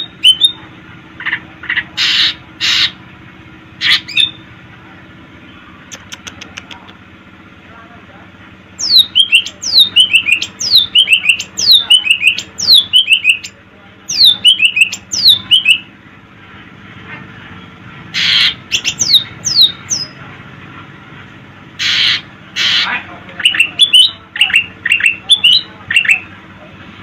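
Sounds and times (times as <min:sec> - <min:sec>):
songbird whistling: 0:00.1 - 0:00.6, 0:08.8 - 0:15.9, 0:18.2 - 0:20.2, 0:23.4 - 0:26.3
harsh rasping bird call: 0:01.3 - 0:03.0, 0:18.1 - 0:20.1, 0:21.8 - 0:26.2.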